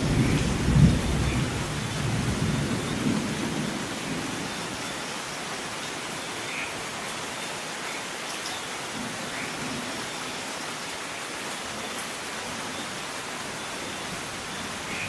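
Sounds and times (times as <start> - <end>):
thunder rumble: 0.0 - 4.7
steady rain hiss: 0.0 - 15.0.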